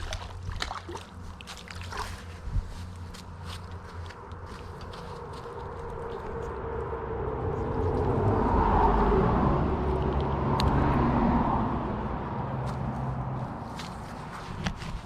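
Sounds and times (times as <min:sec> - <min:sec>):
motor vehicle passing: 0:03.3 - 0:15.0.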